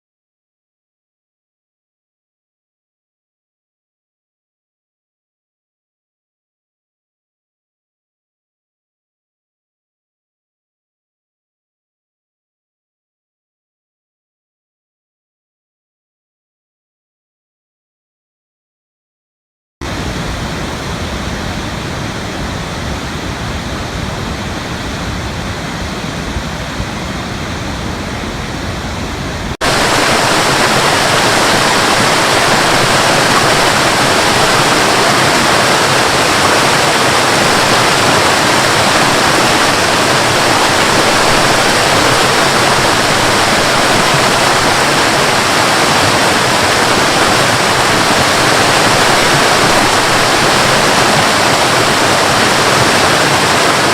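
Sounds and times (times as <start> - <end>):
rushing water: 19.8 - 53.9.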